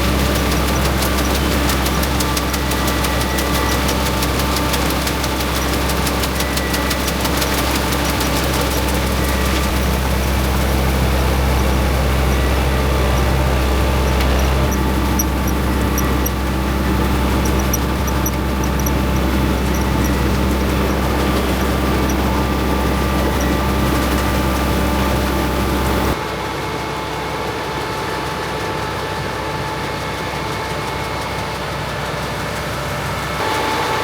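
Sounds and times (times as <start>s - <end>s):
fast fine rattle: 0.0s - 26.2s
vehicle engine running: 0.0s - 34.0s.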